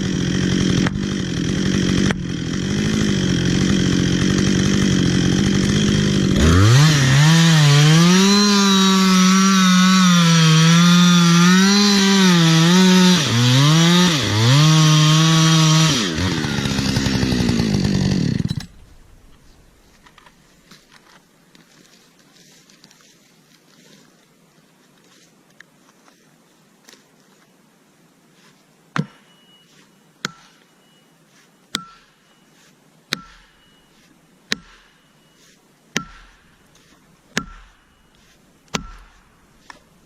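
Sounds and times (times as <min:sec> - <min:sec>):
chainsaw engine revving: 0:00.0 - 0:19.6
faint background noise: 0:18.8 - 0:40.0.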